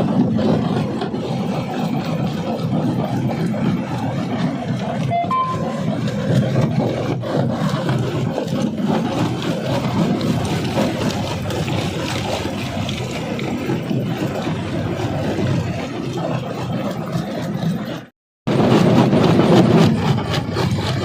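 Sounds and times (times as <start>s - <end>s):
rock crusher rumbling: 0.0s - 21.0s.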